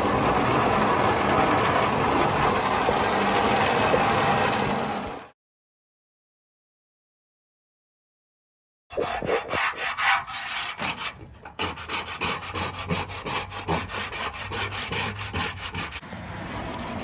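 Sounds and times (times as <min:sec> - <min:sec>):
rapid scraping strokes: 0:08.9 - 0:16.0.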